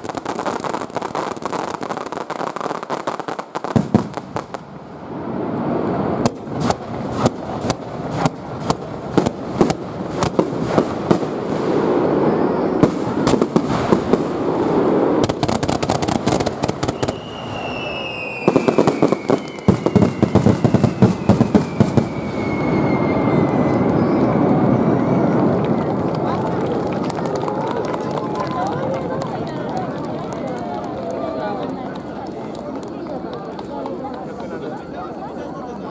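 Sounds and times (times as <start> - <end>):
fireworks cracks and bangs: 0.0 - 35.6
falling whistle: 16.8 - 25.6.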